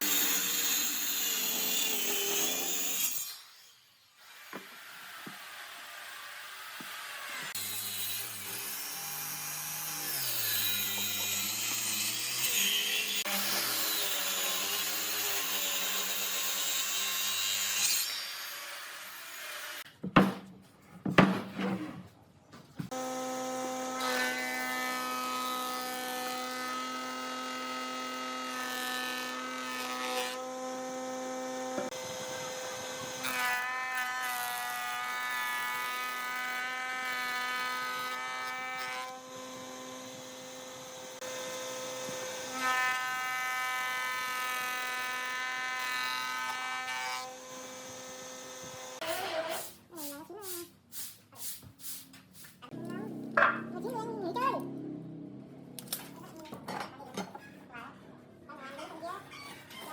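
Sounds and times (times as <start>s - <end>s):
power tool motor cutting wood: 0.0s - 19.8s, 22.9s - 49.6s.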